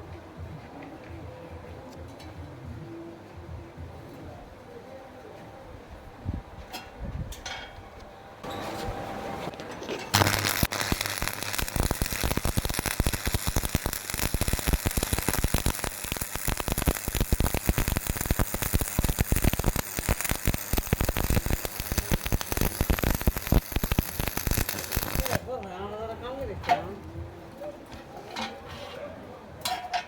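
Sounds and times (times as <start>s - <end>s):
welding arc crackling: 10.1s - 25.4s.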